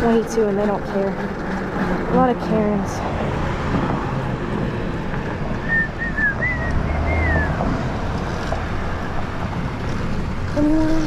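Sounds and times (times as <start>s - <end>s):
electric dirt bike rumble: 0.0s - 3.7s, 6.4s - 11.0s.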